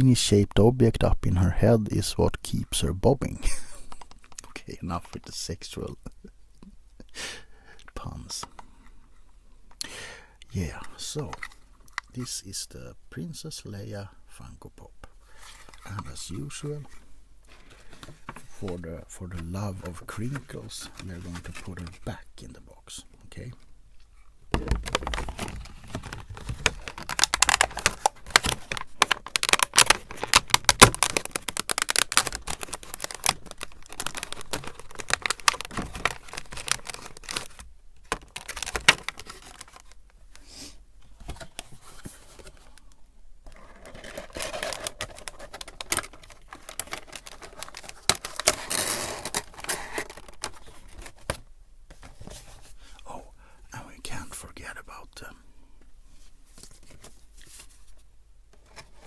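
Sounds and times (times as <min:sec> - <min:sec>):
plastic packaging crinkling: 0:24.6 - 0:40.2, 0:43.5 - 0:51.4.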